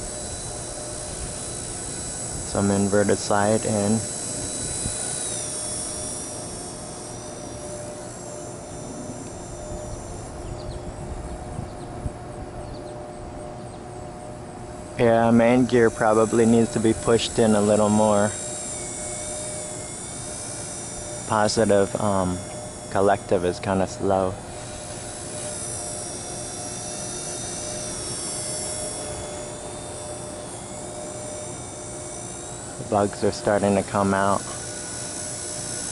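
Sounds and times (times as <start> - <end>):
rc helicopter motor whine: 0.0 - 35.9
wind rumble on microphone: 9.6 - 13.6.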